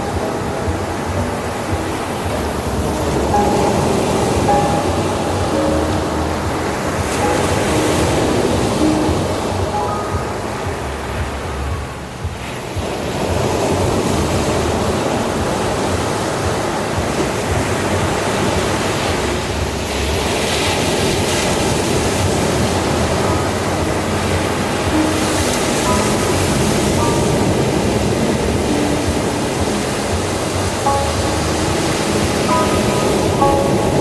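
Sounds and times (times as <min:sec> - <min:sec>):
ocean waves breaking: 0:00.0 - 0:34.0.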